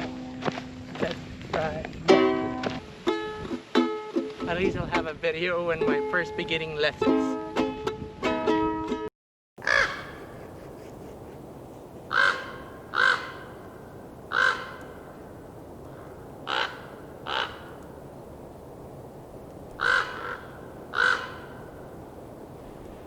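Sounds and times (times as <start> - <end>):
crow cawing: 9.6 - 10.8, 11.8 - 18.2, 19.6 - 22.1.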